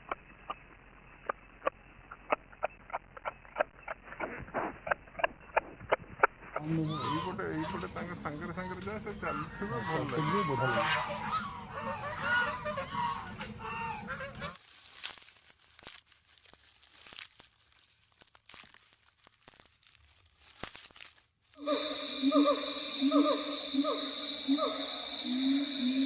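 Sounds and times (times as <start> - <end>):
poultry honking: 6.7 - 14.5
soft crunching and clicking: 14.3 - 21.6.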